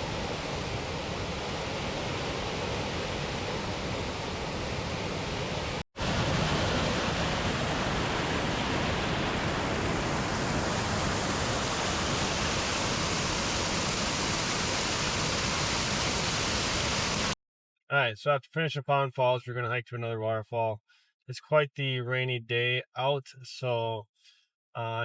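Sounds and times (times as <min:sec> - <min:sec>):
waterfall roaring: 0:00.0 - 0:17.4.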